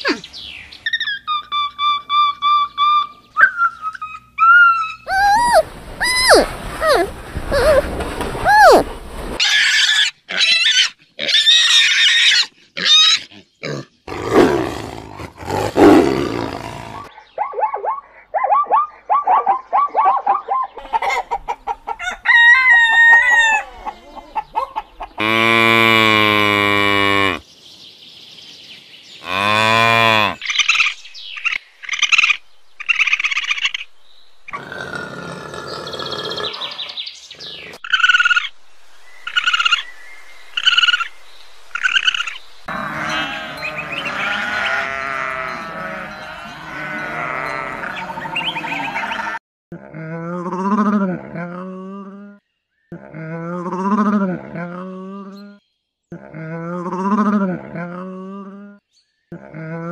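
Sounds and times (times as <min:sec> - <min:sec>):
animal squealing: 0:04.4 - 0:13.8
low rasping animal call: 0:05.0 - 0:17.1, 0:25.2 - 0:27.4, 0:29.2 - 0:30.4, 0:42.7 - 0:52.2
clucking: 0:20.0 - 0:22.2, 0:23.8 - 0:25.2
rooster crowing: 0:21.9 - 0:24.4.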